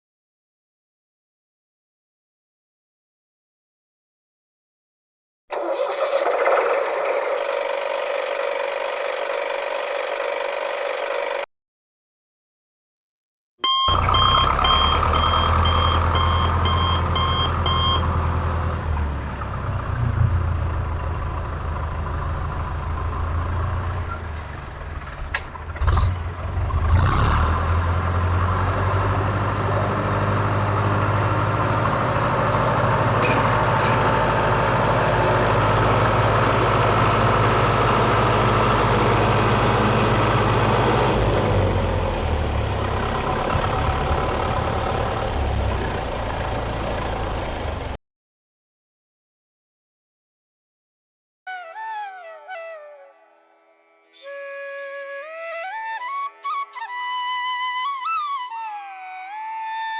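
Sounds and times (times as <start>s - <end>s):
reversing beeps: 13.6s - 18.1s
engine idling: 13.6s - 25.8s, 29.8s - 48.0s.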